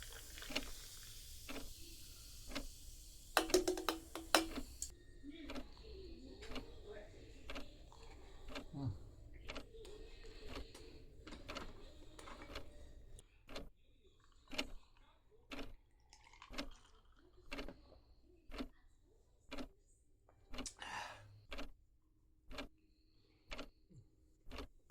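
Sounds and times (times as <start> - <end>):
clock ticking: 3.4 - 4.9, 21.5 - 21.7, 22.5 - 22.7.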